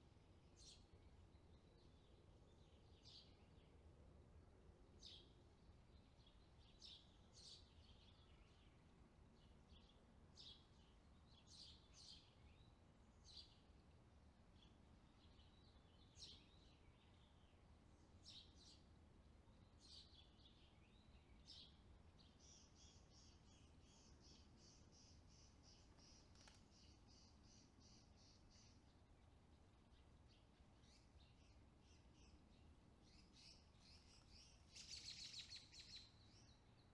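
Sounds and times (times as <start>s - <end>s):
low background hiss: 0.0s - 36.9s
faint bird chirps: 5.0s - 13.9s, 14.5s - 36.9s.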